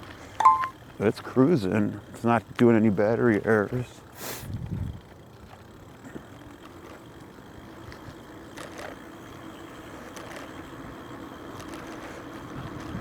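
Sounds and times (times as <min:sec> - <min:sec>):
wind noise: 0:04.4 - 0:05.0.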